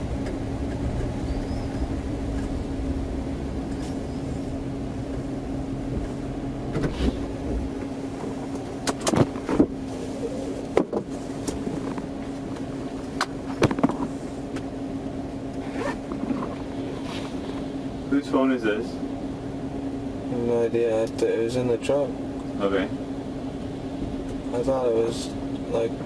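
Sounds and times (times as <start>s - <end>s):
low rumble: 0.0s - 10.6s
steady hum: 0.0s - 26.0s
sharp clicks and knocks: 8.5s - 9.7s.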